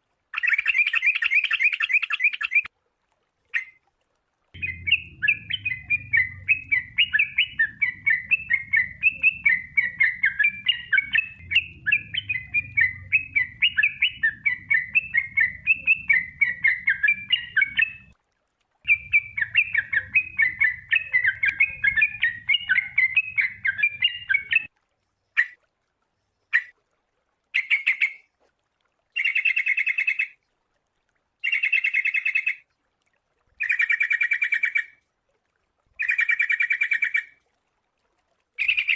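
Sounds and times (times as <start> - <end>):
bird singing chirping phrases: 0.4 - 2.7, 4.6 - 18.1, 18.9 - 24.7, 29.2 - 30.4, 31.4 - 32.6, 36.0 - 37.3, 38.6 - 38.9
faint low hum: 4.5 - 18.1.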